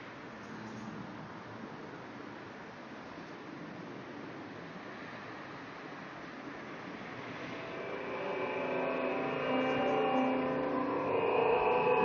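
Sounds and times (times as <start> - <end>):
rushing outdoor noise: 0.0 - 12.0.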